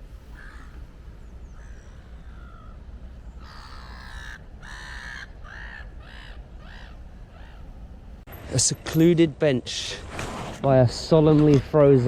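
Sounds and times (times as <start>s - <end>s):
crow cawing: 0.4s - 0.8s, 1.5s - 2.8s, 3.4s - 7.7s.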